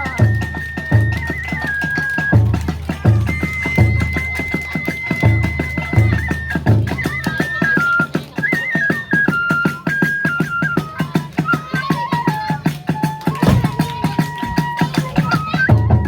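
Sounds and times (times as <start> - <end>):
bamboo flute melody: 0.0 - 16.0
fast drum strokes: 11.5 - 15.5.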